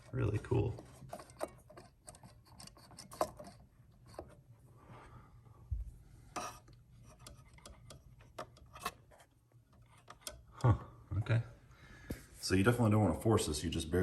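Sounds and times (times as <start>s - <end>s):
plastic parts clicking and tapping: 0.8s - 4.4s, 6.4s - 10.7s.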